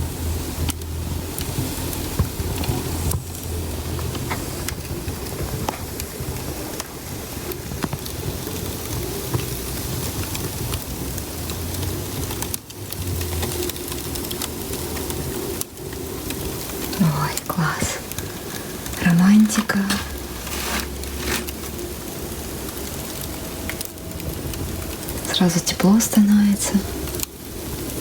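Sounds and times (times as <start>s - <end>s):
fire rushing noise: 0.0s - 28.0s
wood fire crackling: 0.0s - 28.0s.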